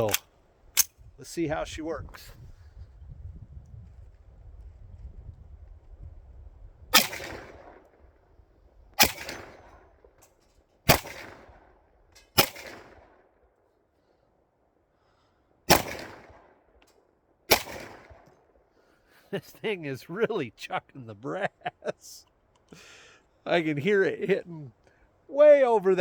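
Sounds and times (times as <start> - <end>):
pistol shots: 7.0 - 7.8, 9.0 - 9.7, 10.9 - 11.6, 12.4 - 13.1, 15.7 - 16.5, 17.5 - 18.2.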